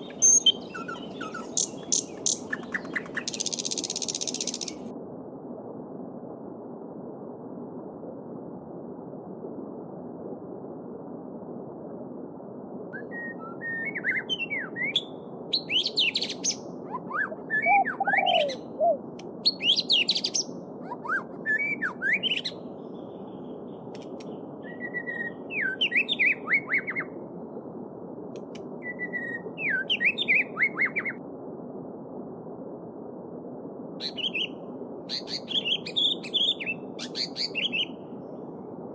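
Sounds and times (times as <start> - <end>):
songbirds singing: 0.0 - 4.9, 13.0 - 27.1, 28.8 - 31.2, 34.0 - 38.4.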